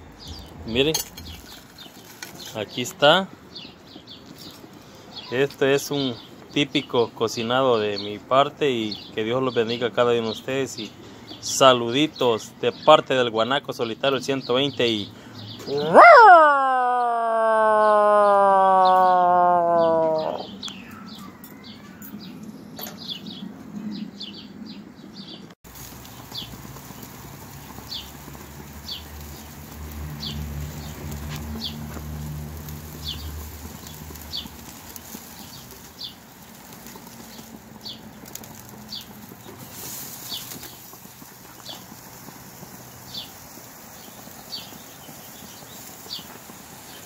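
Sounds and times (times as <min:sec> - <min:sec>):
small bird chirping: 0:00.2 - 0:02.6, 0:18.8 - 0:24.5, 0:43.0 - 0:47.0.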